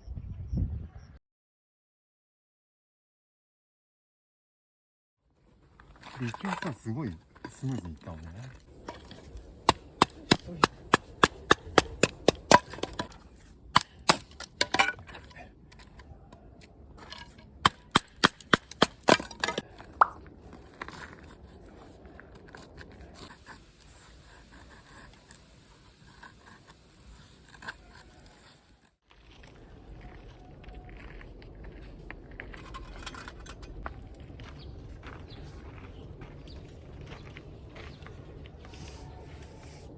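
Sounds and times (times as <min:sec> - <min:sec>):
firewood being split: 0:05.7 - 0:34.3.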